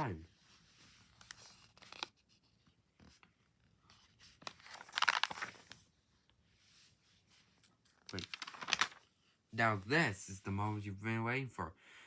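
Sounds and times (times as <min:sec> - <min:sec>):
paper rustling and crinkling: 0:00.4 - 0:05.9, 0:07.3 - 0:09.2.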